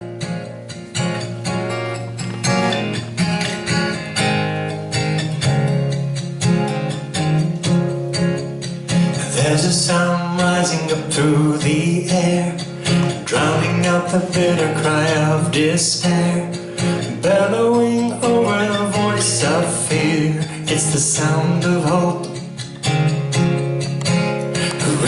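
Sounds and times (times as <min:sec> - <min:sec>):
acoustic guitar strumming: 0:00.0 - 0:25.0
person singing: 0:09.2 - 0:22.5, 0:24.6 - 0:25.0.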